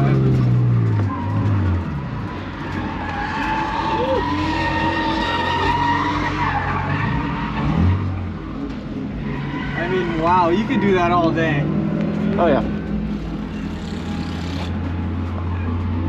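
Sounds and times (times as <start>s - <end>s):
tyres squealing: 0.0s - 8.1s, 9.2s - 11.6s
car engine running hard: 9.8s - 16.0s.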